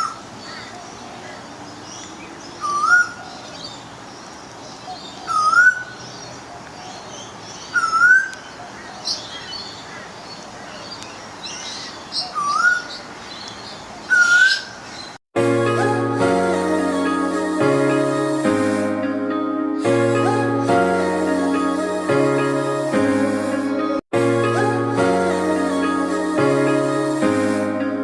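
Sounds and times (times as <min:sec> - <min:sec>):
faint high bird chirps: 0:00.0 - 0:15.2.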